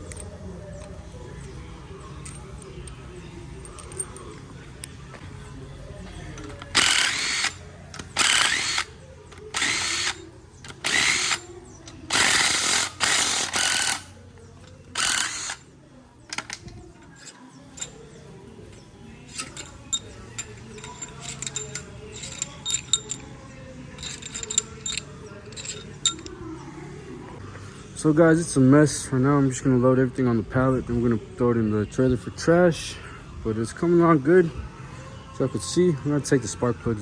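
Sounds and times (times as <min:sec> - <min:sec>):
metallic clinks of tools: 0:06.0 - 0:15.7, 0:16.3 - 0:23.4, 0:24.0 - 0:26.4
cordless drill bursts: 0:06.7 - 0:11.5, 0:12.1 - 0:14.1, 0:15.0 - 0:15.6.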